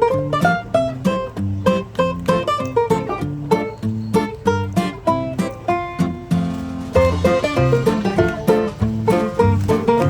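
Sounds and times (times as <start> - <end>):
plucked-string tune: 0.0 - 10.0
bass line: 6.1 - 10.0.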